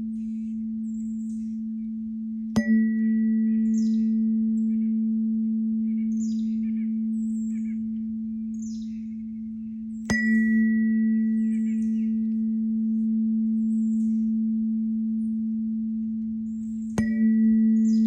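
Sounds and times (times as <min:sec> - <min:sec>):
birds chirping: 0:00.0 - 0:18.0
tuning fork humming: 0:00.0 - 0:18.0
tuning fork strike ping: 0:00.0 - 0:18.0.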